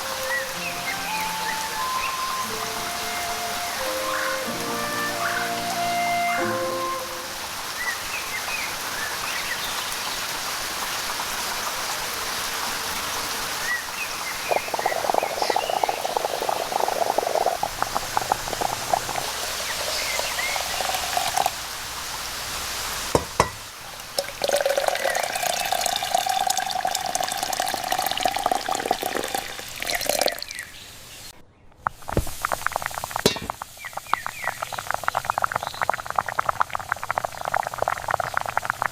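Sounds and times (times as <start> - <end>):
rain falling: 0.0 - 30.5
pouring water splashing: 0.0 - 30.7, 32.0 - 38.9.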